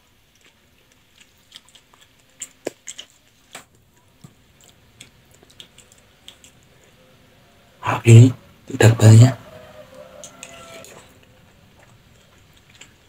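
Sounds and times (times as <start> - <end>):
wet chewing sounds: 0.0 - 7.2, 9.7 - 13.0.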